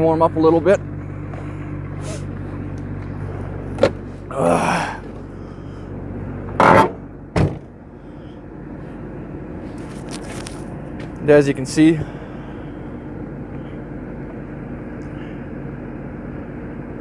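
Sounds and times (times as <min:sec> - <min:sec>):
car engine idling: 0:00.0 - 0:17.0
car door scraping: 0:01.4 - 0:04.2, 0:06.5 - 0:07.7
car door creaking: 0:02.0 - 0:04.3, 0:06.5 - 0:07.7
car door thunk: 0:03.7 - 0:04.0, 0:06.6 - 0:07.7
car door click: 0:03.8 - 0:04.0.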